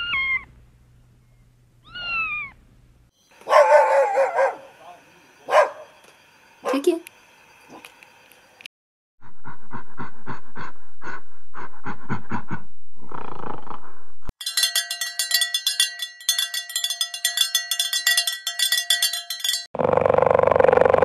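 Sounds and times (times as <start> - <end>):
cowbells clanking: 14.4 - 19.7.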